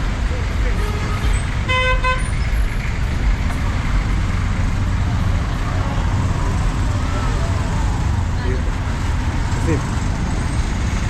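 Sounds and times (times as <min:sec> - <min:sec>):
rumble of street traffic: 0:00.0 - 0:11.0
vehicle horn toots: 0:00.8 - 0:02.3.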